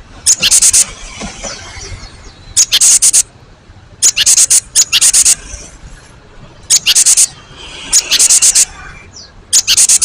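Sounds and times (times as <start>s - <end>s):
bird giving harsh rattling calls: 0.2s - 3.3s, 4.0s - 5.7s, 6.6s - 8.9s, 9.5s - 10.0s.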